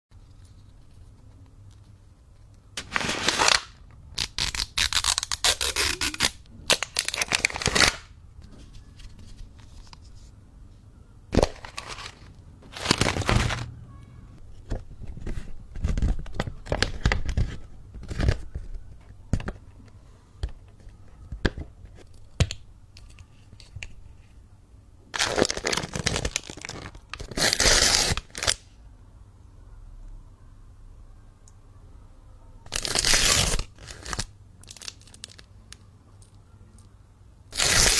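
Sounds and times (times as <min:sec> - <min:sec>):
plastic packaging tearing and crinkling: 0:02.8 - 0:08.1, 0:11.4 - 0:13.7, 0:25.2 - 0:28.6, 0:32.7 - 0:35.5, 0:37.5 - 0:37.9.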